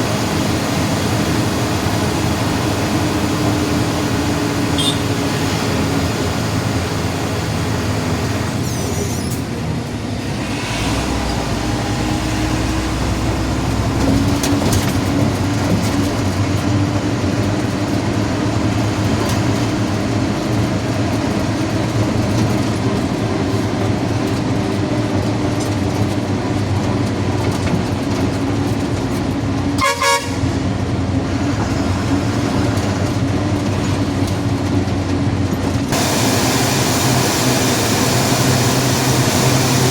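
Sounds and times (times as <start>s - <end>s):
road noise: 0.0s - 39.9s
vehicle engine drone: 0.0s - 39.9s
car horn toot: 4.8s - 5.1s, 29.8s - 30.6s.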